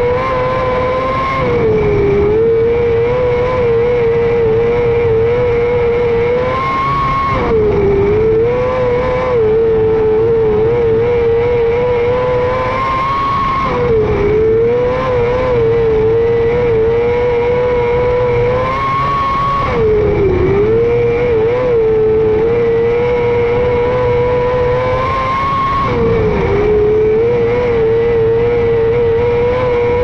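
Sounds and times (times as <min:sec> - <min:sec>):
motorcycle engine at high revs: 0:00.0 - 0:30.0.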